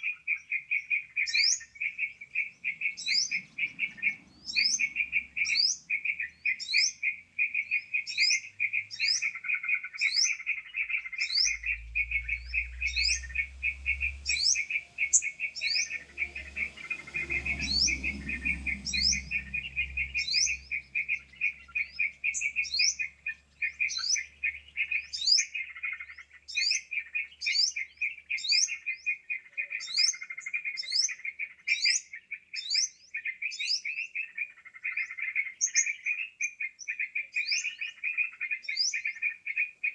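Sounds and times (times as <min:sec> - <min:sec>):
bulbul calls chattering: 0:00.0 - 0:39.9
low rumble: 0:11.2 - 0:22.8.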